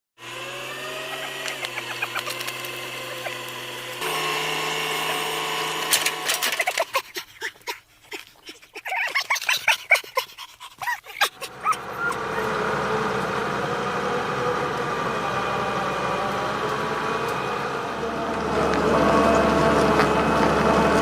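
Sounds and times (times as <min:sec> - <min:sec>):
excavator diesel engine running: 0:00.2 - 0:06.8, 0:11.3 - 0:21.0
high yelping cries: 0:01.0 - 0:02.5, 0:08.7 - 0:12.6.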